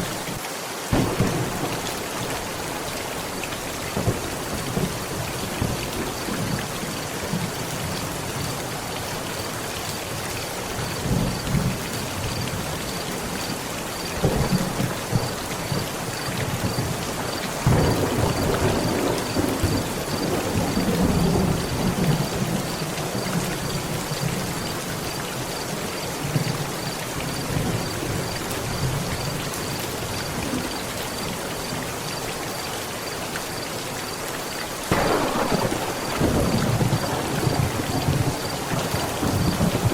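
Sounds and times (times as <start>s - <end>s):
heavy rain pattering on a tent: 0.0s - 39.9s
thunder rumbling: 0.9s - 7.4s, 14.2s - 24.6s, 34.9s - 39.9s.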